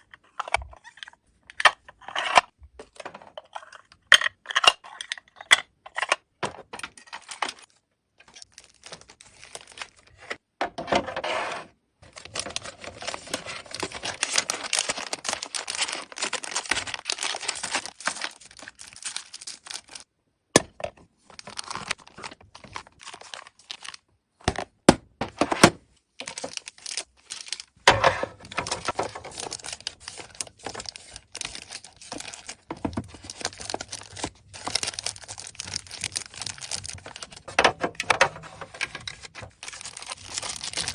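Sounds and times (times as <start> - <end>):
packaging crinkling and tearing: 7.1 - 10.4, 12.0 - 20.1, 21.3 - 24.0, 26.2 - 40.9.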